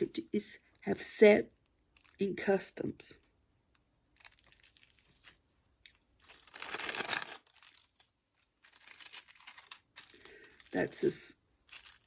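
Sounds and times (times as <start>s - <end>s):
packaging crinkling: 4.1s - 12.0s.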